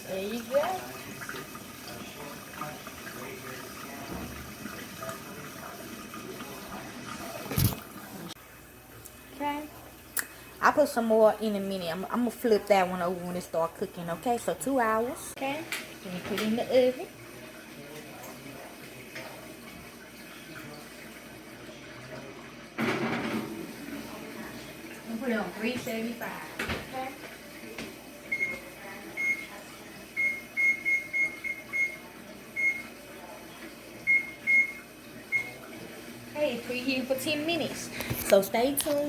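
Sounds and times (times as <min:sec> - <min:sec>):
water pouring into a pan: 0:00.0 - 0:08.4, 0:15.5 - 0:36.8.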